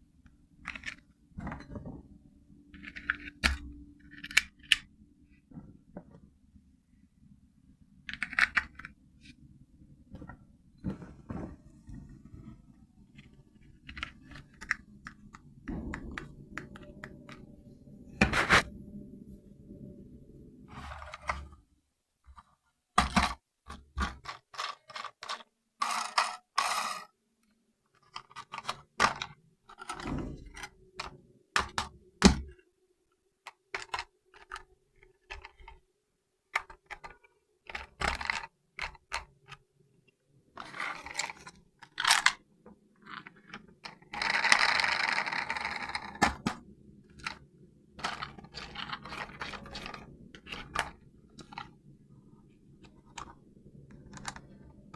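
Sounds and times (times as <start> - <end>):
toy car handling clicks and knocks: 0.6 - 1.1, 2.7 - 4.9, 8.0 - 9.0, 13.2 - 17.4, 22.3 - 27.1, 27.9 - 32.6, 33.4 - 35.8, 36.5 - 39.6, 40.6 - 42.4, 43.0 - 47.4, 48.0 - 51.8, 52.8 - 54.9.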